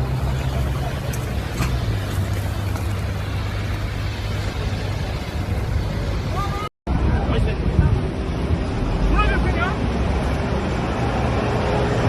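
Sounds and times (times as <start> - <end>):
engine humming: 0.0 - 6.7
broad rushing noise: 0.0 - 12.0.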